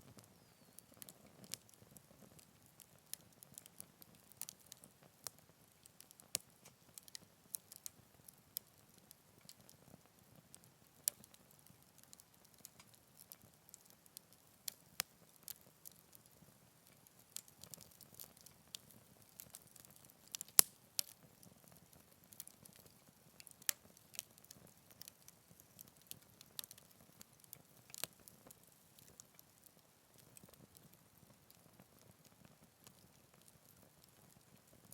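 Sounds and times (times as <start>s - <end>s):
faint steady hiss: 0.0s - 34.9s
wood fire crackling and popping: 0.0s - 34.9s.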